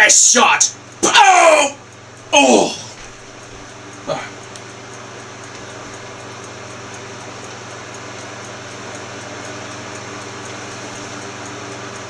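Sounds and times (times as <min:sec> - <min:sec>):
machine hum and hiss: 0:00.0 - 0:12.0
faint regular tick: 0:04.4 - 0:12.0.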